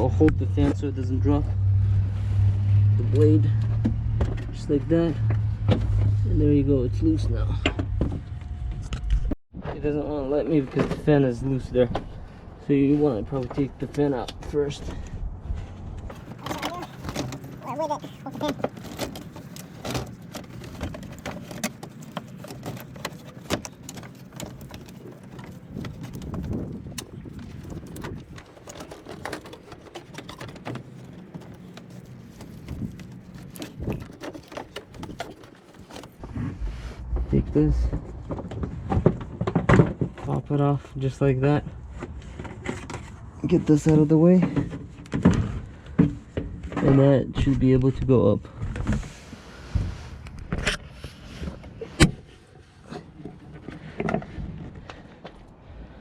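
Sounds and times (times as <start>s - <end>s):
engine parts knocking and scraping: 0.0s - 56.0s
clicks and taps of engine parts: 16.1s - 36.2s.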